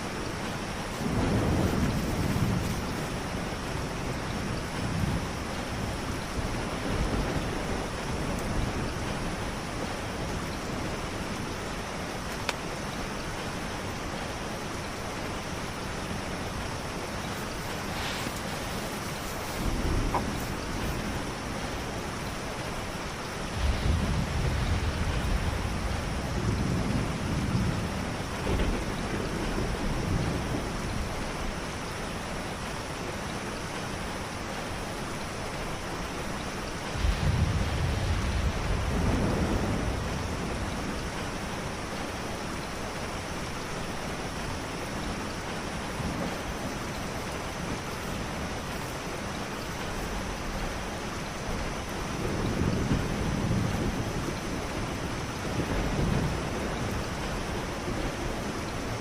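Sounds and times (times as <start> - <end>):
steady rain: 0.0 - 59.0
thunder rolling: 0.8 - 9.2, 17.2 - 22.0, 23.5 - 31.2, 36.9 - 41.4, 52.1 - 58.7.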